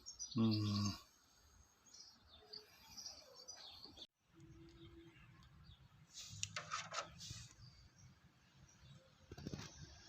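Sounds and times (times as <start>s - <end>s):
faint high bird chirps: 0.0s - 1.1s.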